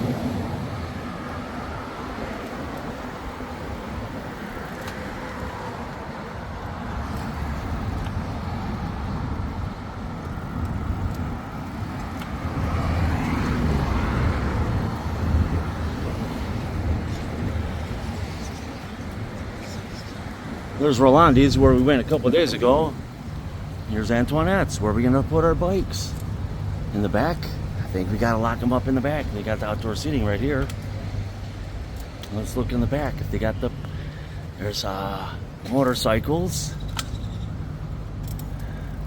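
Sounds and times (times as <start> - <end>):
highway traffic rumble: 0.0 - 39.0.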